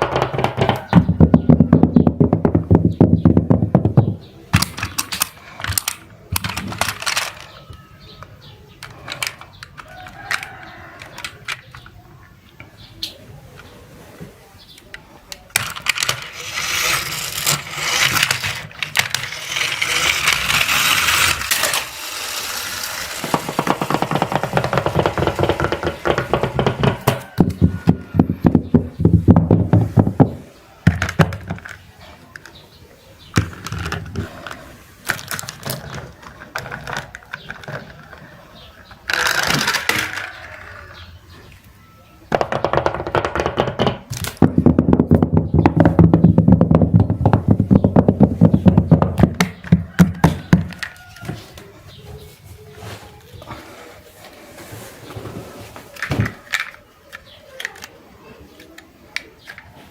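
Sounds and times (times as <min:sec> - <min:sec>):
small hard objects rattling: 0:00.0 - 0:07.9, 0:15.5 - 0:31.9, 0:33.3 - 0:40.8.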